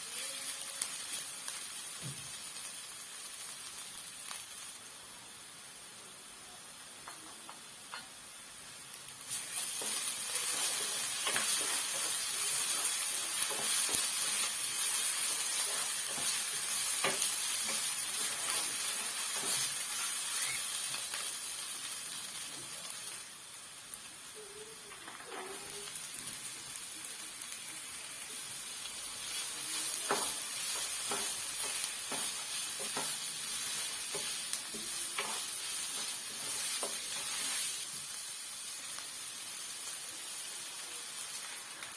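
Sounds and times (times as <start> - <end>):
filling sizzling in oil: 0.0 - 41.9
spoon scraping a pan: 9.3 - 21.3, 29.2 - 37.8.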